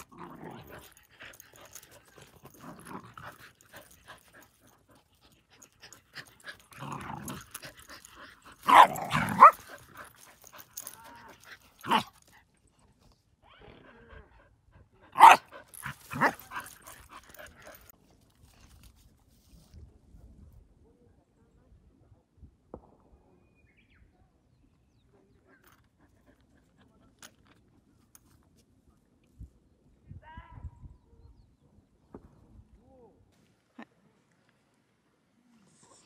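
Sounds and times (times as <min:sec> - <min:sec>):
dogs growling: 0:00.0 - 0:12.4, 0:15.2 - 0:17.9
dogs barking: 0:08.6 - 0:10.2, 0:15.2 - 0:17.8.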